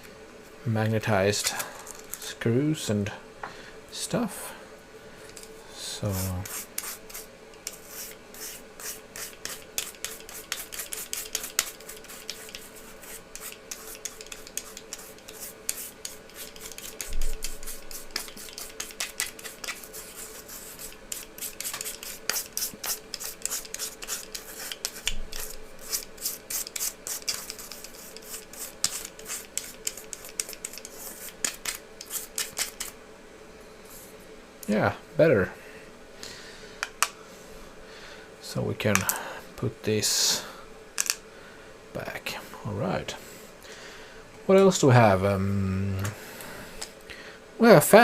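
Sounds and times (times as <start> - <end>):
brush scrubbing metal bowl: 6.0 - 32.9.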